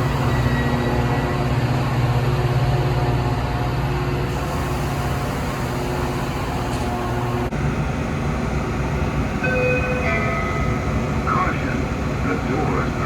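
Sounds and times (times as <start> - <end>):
train engine rumble: 0.0 - 13.0.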